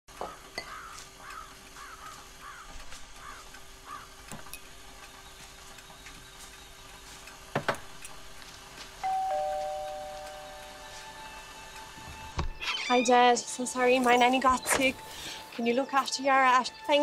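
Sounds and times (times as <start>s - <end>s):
bird cawing: 0.3s - 4.3s.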